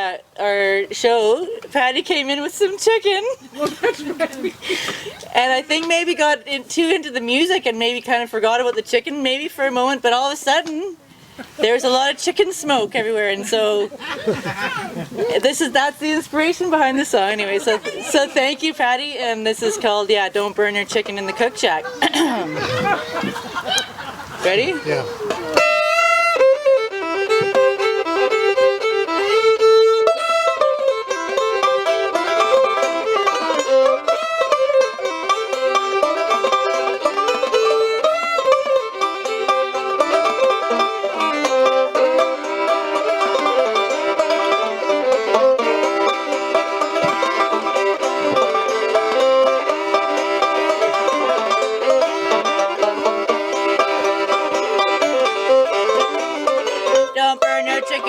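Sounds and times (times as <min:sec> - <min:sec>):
acoustic string band playing: 0:00.0 - 0:58.0.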